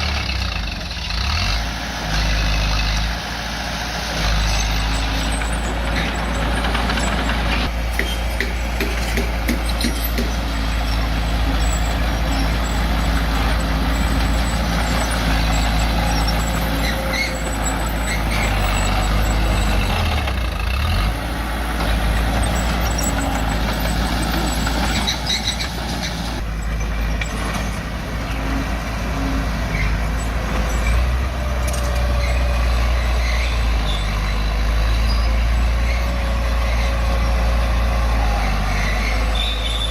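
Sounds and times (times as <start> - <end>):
bulldozer diesel engine running: 0.0 - 39.9
metallic knocks: 6.7 - 10.7.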